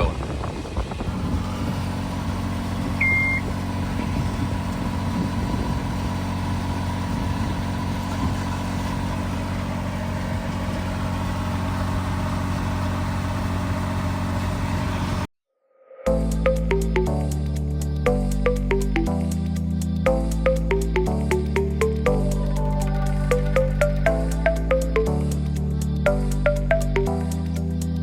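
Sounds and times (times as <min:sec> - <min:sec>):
boat engine idling: 0:00.4 - 0:14.9
short electronic beep: 0:03.0 - 0:03.5.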